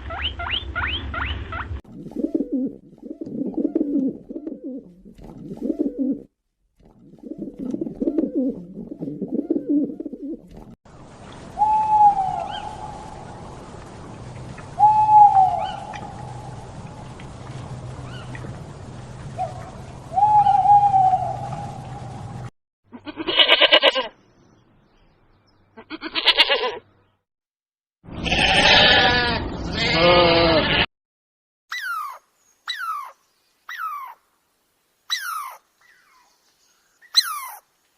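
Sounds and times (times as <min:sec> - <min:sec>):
bird hooting calls: 0:00.0 - 0:06.3, 0:07.2 - 0:10.5, 0:11.6 - 0:13.4, 0:14.6 - 0:17.0, 0:19.3 - 0:22.3, 0:31.7 - 0:34.2, 0:35.1 - 0:36.3, 0:37.0 - 0:37.6
bird cooing: 0:02.0 - 0:06.3, 0:07.1 - 0:10.6, 0:11.6 - 0:13.3, 0:14.8 - 0:16.7, 0:19.4 - 0:22.2
small animal crying: 0:22.9 - 0:24.1, 0:25.8 - 0:26.8, 0:31.7 - 0:34.2, 0:35.1 - 0:35.6, 0:37.2 - 0:37.6
faint bird chirps: 0:35.1 - 0:37.7.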